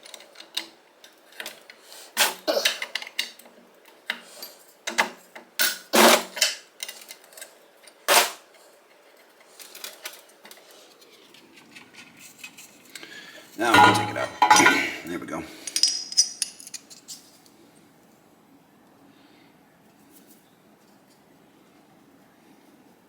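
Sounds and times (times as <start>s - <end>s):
metal tools clanking on engine: 13.6s - 17.1s.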